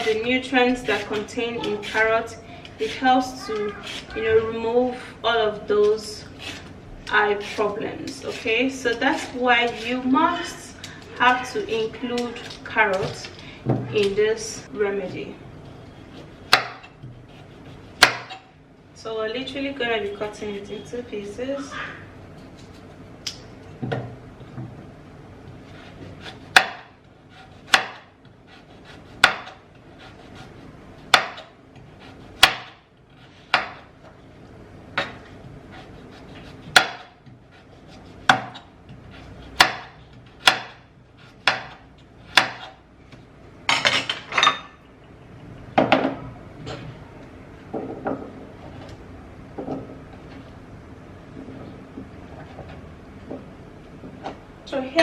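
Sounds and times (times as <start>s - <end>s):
knife chopping on cutting board: 16.2s - 18.4s, 25.7s - 30.5s, 31.1s - 32.8s, 33.5s - 33.9s, 35.0s - 42.8s.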